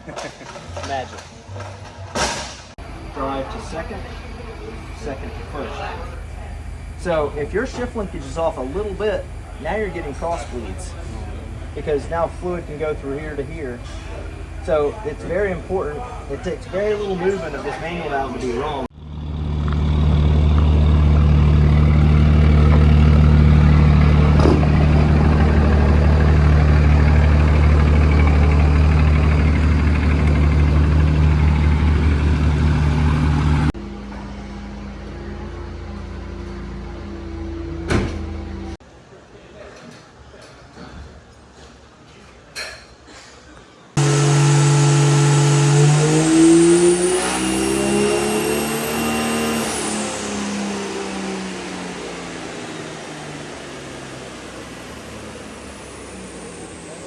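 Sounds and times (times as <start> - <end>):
diesel pickup engine running: 2.8 - 38.8, 44.0 - 57.0.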